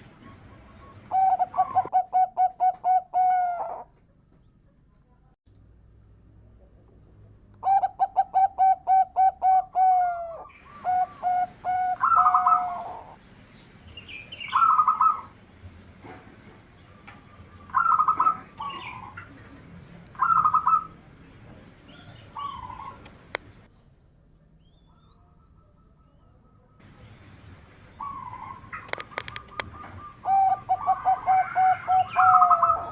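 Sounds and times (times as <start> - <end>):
dove cooing: 0.0 - 3.9, 7.6 - 13.2, 14.5 - 15.4, 17.0 - 19.5, 20.2 - 21.0, 21.9 - 23.4, 28.0 - 32.9.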